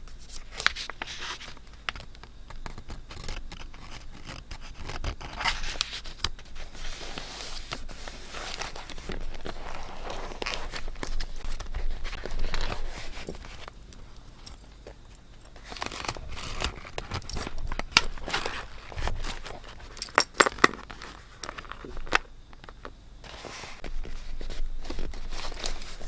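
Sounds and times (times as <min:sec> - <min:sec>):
paper rustling and crinkling: 0:00.0 - 0:13.9, 0:14.7 - 0:26.0.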